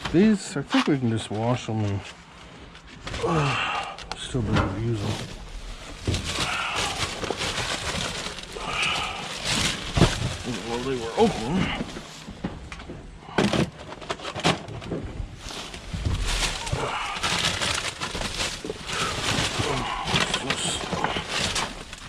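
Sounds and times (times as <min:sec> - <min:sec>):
plastic bags rustling and crinkling: 0:00.0 - 0:22.0.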